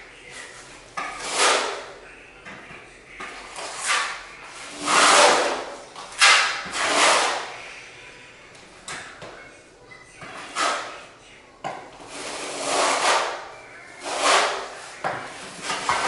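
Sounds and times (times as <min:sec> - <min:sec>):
hand tool scraping floor: 0:00.2 - 0:02.0, 0:03.2 - 0:07.7, 0:10.2 - 0:11.1, 0:11.9 - 0:16.0.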